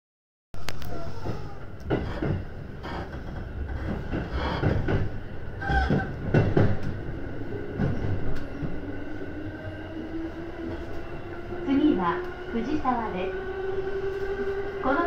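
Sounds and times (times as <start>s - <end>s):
train wheels clacking over joints: 1.1s - 7.0s.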